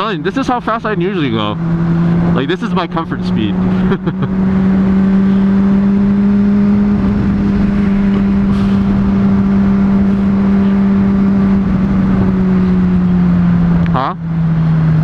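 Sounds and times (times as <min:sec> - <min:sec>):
motorcycle engine cruising drone: 0:00.0 - 0:15.0
rushing wind noise: 0:03.5 - 0:13.9.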